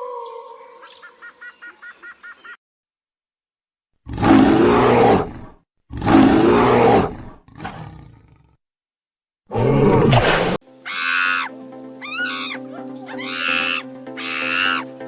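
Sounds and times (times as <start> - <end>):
large wild animal calling: 10.8 - 14.8.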